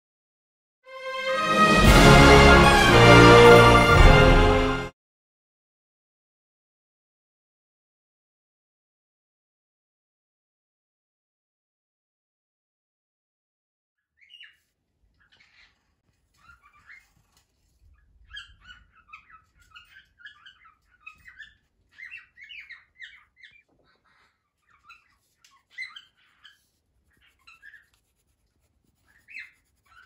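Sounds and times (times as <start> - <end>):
faint bird chirping: 14.0 - 30.0.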